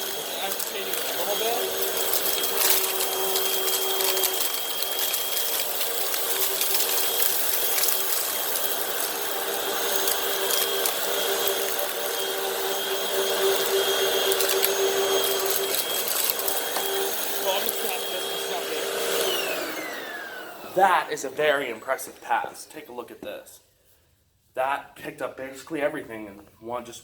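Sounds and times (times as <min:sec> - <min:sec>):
grit crackling in vacuum: 0:00.0 - 0:20.2
vacuum cleaner motor whine: 0:00.0 - 0:22.1.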